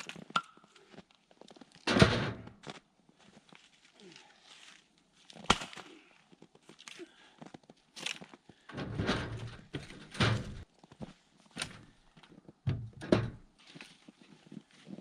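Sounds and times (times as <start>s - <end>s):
logs thudding into a trailer: 1.9s - 2.5s, 8.7s - 10.7s, 12.7s - 13.5s.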